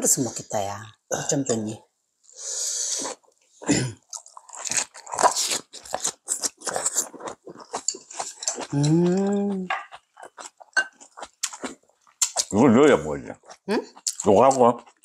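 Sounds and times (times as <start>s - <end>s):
chewing and crunching food: 3.0s - 15.0s
person humming mmm: 8.7s - 9.8s.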